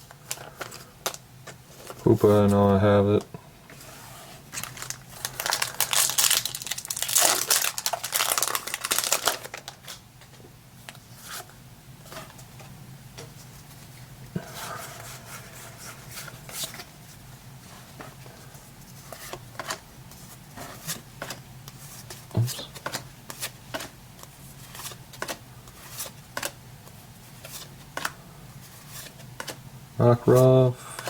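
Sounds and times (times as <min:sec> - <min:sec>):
foil wrapper crinkling and tearing: 0:04.6 - 0:10.0.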